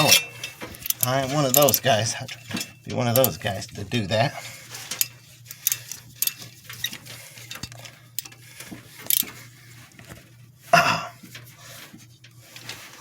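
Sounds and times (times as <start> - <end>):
tools clinking against metal: 0.0 - 8.4, 9.0 - 9.3
steady low hum: 0.0 - 13.0.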